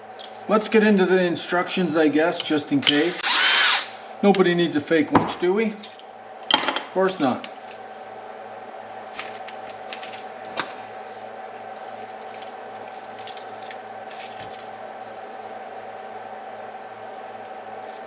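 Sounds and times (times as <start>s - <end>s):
steady background hum: 0.0s - 18.0s
hands handling parts and paper: 9.1s - 15.6s, 17.0s - 18.0s.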